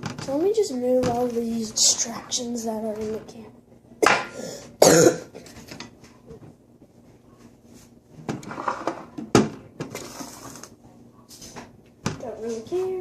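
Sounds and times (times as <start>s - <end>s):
objects rustling and handled: 0.0s - 3.3s.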